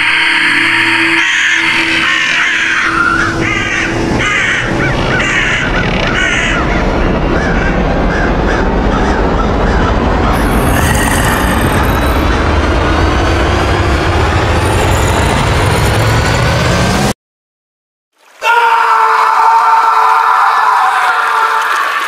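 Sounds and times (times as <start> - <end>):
crows cawing: 1.3 - 10.0.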